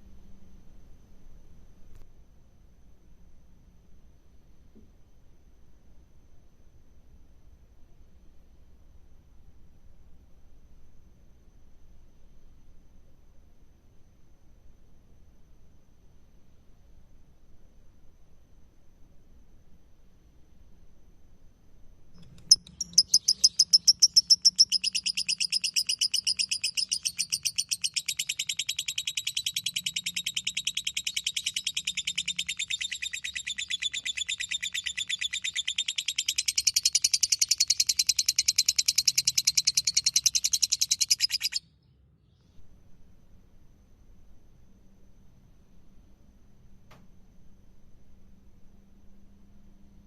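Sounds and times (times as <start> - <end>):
lovebird rapid shrill chirps: 22.2 - 41.6.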